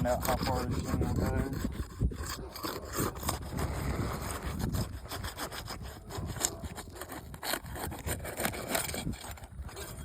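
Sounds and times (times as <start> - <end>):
roof shingles scraping and crackling: 2.5 - 10.0.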